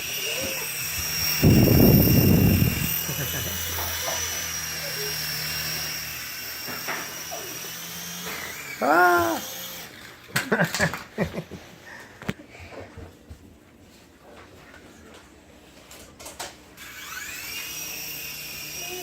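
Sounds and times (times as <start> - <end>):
toy helicopter motors whining: 0.0 - 11.0, 16.8 - 19.0.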